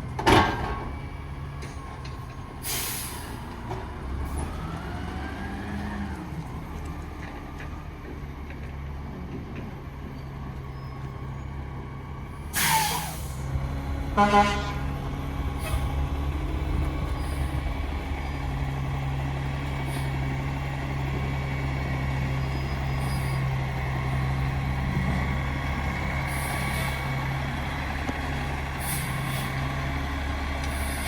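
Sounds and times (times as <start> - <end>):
garbage truck engine running: 11.1 - 31.0
air hissing: 12.6 - 13.5.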